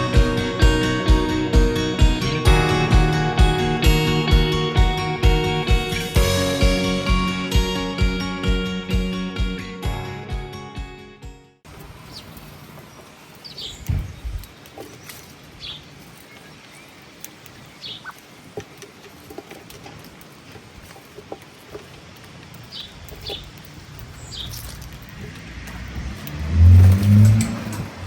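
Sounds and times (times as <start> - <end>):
birds chirping: 11.7 - 28.0.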